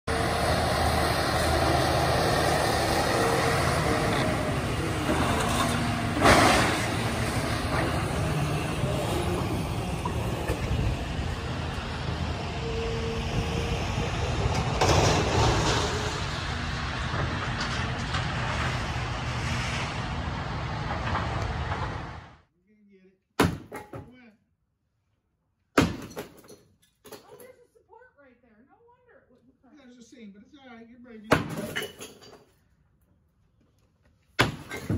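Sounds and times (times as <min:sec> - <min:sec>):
heavy diesel demolition machinery: 0:00.1 - 0:22.4.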